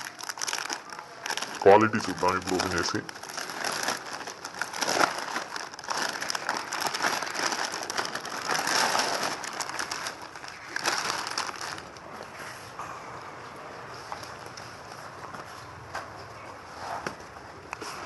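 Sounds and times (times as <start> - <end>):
plastic packet crinkling: 0.0 - 12.0.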